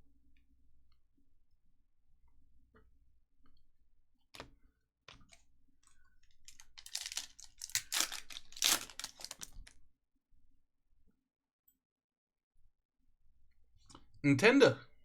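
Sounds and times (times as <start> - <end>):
foil wrapper tearing and crinkling: 6.5 - 9.8.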